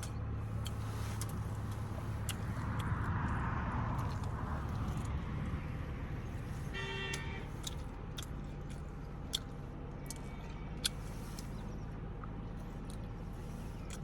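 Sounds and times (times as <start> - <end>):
steady low rumble: 0.0 - 14.0
vehicle horn toot: 6.7 - 7.5.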